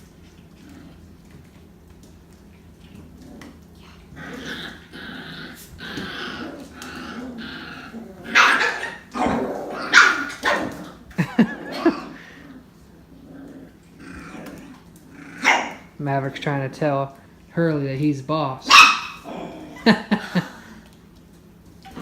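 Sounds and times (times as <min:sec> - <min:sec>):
puppies growling: 0:00.0 - 0:17.5, 0:18.6 - 0:22.0
high puppy barks: 0:08.3 - 0:10.8, 0:15.4 - 0:15.9, 0:18.6 - 0:19.3.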